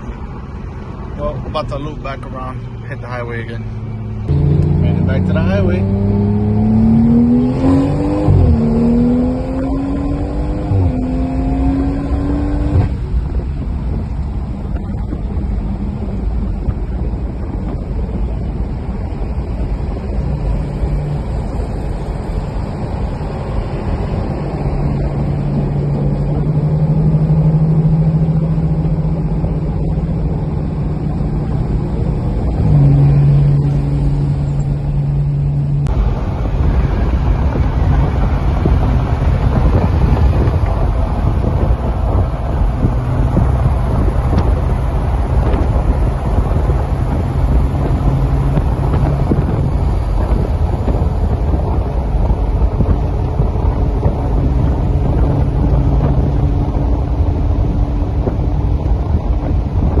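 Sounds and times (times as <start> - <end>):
car engine accelerating: 0.0 - 60.0
road and wind noise: 0.0 - 60.0.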